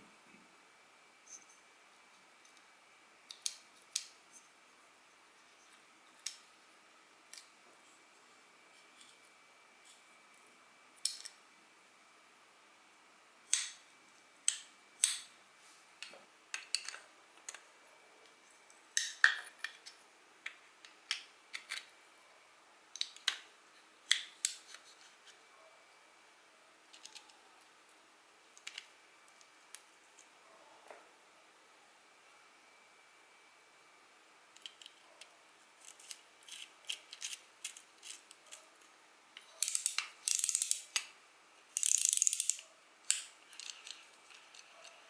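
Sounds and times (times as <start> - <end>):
small metal parts clinking: 39.6 - 41.0, 41.8 - 42.6.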